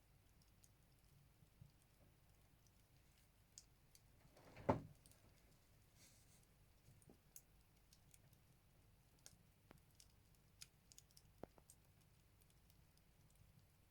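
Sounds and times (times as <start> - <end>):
firewood crackling in a stove: 0.0 - 13.9.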